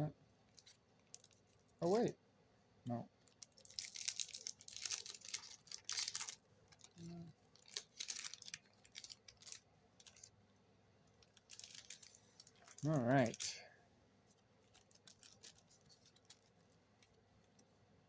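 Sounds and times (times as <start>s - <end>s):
foil wrapper crinkling and tearing: 0.6s - 1.6s, 3.3s - 10.3s, 11.2s - 13.6s, 14.6s - 16.6s.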